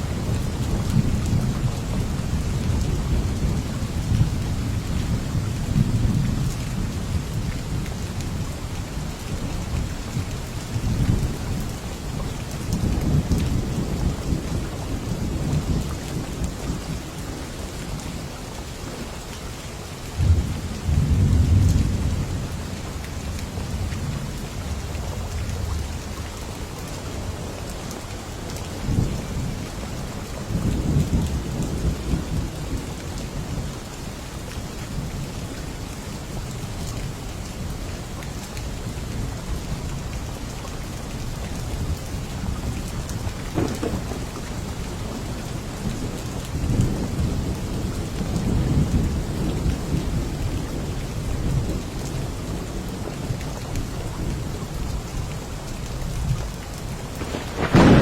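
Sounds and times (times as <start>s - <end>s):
rolling thunder: 20.2s - 22.5s, 43.3s - 51.8s, 57.1s - 58.0s
rain hissing: 40.4s - 52.6s, 56.7s - 58.0s
thunder crack: 43.5s - 44.7s, 57.1s - 58.0s.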